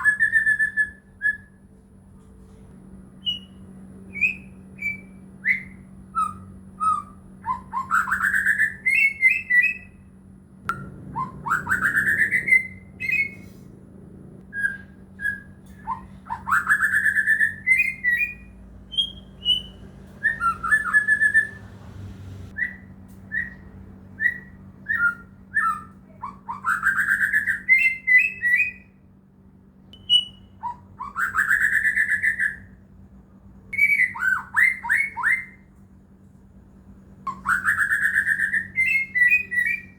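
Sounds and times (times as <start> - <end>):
bird singing whistled phrases: 0.0 - 1.6, 3.2 - 10.1, 11.1 - 13.4, 14.5 - 21.6, 22.5 - 29.0, 30.0 - 32.7, 33.8 - 35.6, 37.3 - 39.9.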